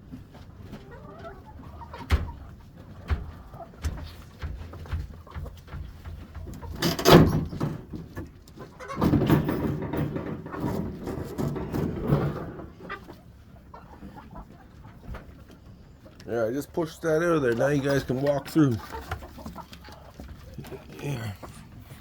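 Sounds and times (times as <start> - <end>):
scraping and rustling: 2.4 - 16.2.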